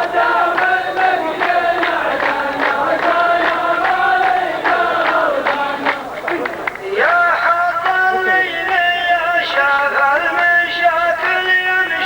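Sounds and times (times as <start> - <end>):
voices chanting in unison: 0.0 - 12.0.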